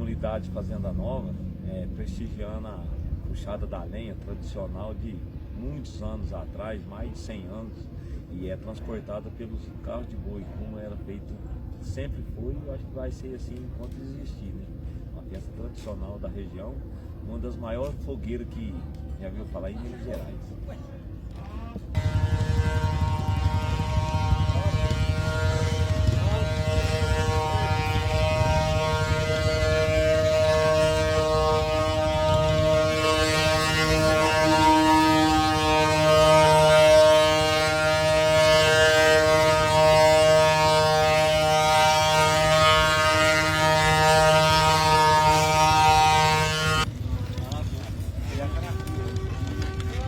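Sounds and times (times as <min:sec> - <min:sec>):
wooden axle whining: 0:22.0 - 0:50.0
cart rolling rumble: 0:46.8 - 0:50.0.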